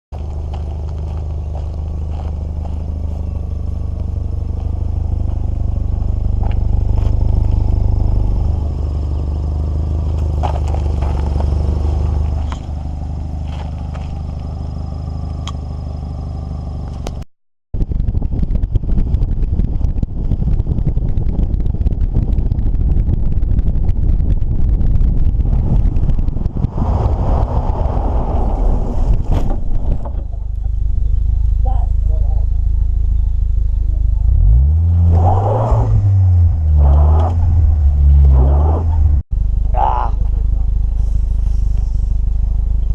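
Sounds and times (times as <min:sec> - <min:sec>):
car engine droning: 0:00.2 - 0:17.2, 0:17.8 - 0:42.9
wind buffeting microphone: 0:17.8 - 0:30.5
rough fluctuating rumble: 0:17.8 - 0:39.6.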